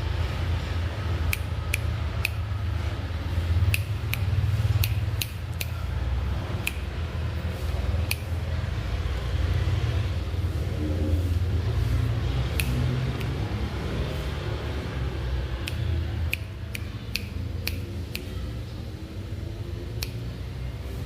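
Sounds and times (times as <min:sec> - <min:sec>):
sharp snipping clicks: 0:01.2 - 0:02.6, 0:03.6 - 0:07.0, 0:08.0 - 0:08.4, 0:12.4 - 0:13.5, 0:15.6 - 0:18.7, 0:19.9 - 0:20.5.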